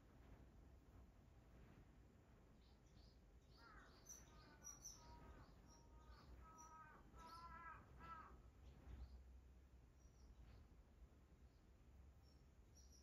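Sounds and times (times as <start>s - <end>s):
faint bird calls: 3.5s - 8.4s.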